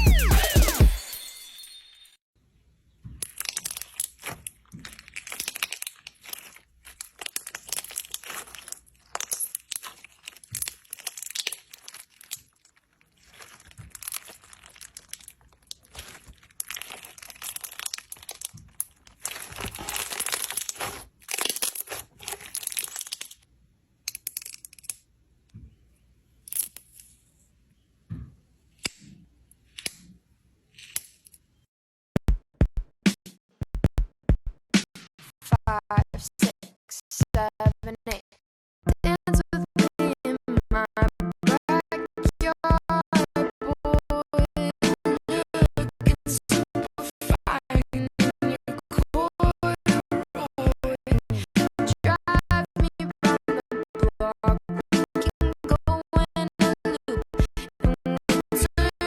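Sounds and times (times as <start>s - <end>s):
slime crackling and clicking: 3.2s - 23.4s.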